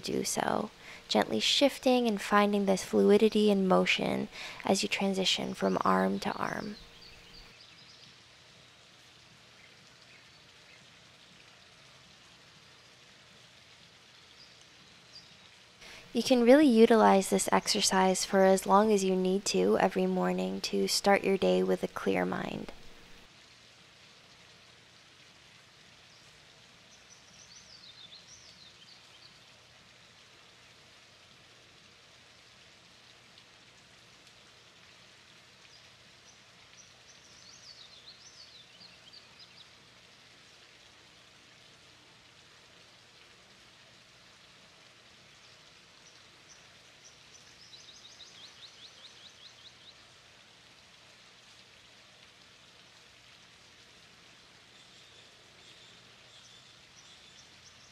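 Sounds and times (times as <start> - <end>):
faint background hiss: 0.0 - 57.9
bird singing high phrases: 4.1 - 7.9.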